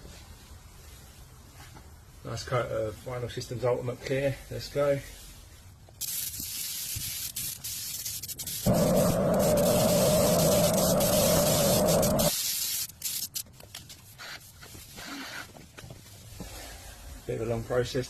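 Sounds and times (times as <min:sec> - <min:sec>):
spray gun hissing: 0:06.1 - 0:13.3
low droning noise: 0:08.7 - 0:12.3.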